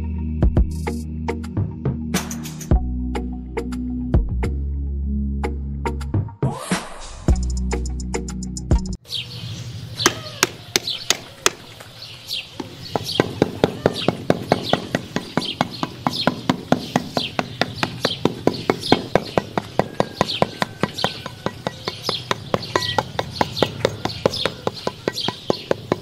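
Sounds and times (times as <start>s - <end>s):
music: 0.0s - 9.0s
bird chirping: 9.0s - 26.0s
trowel tapping on cement: 12.6s - 26.0s.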